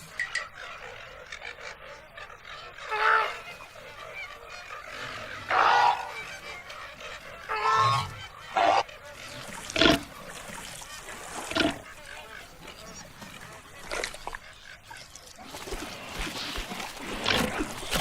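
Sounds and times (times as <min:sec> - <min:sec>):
animal crying: 0:02.9 - 0:03.4, 0:05.4 - 0:06.3, 0:07.4 - 0:08.8.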